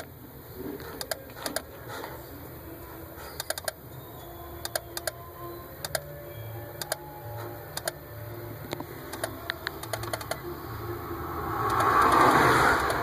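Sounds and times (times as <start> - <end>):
steady low hum: 0.0 - 13.0
flasher relay clicking: 0.8 - 2.1, 3.3 - 3.8, 4.6 - 5.2, 5.8 - 6.1, 6.7 - 8.0, 8.7 - 10.4.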